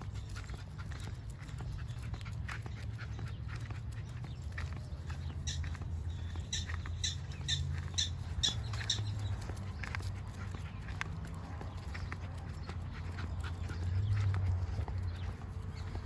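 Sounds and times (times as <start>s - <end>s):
prairie dogs chirping barks: 0.0s - 16.0s.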